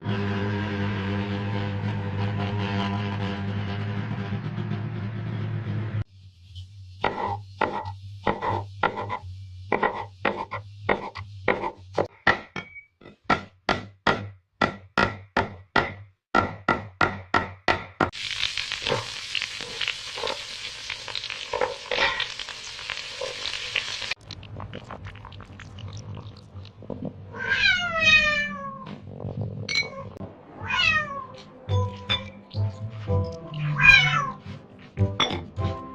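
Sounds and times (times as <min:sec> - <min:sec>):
knife chopping on cutting board: 0:07.0 - 0:12.5
fish sizzling in a pan: 0:18.1 - 0:24.2.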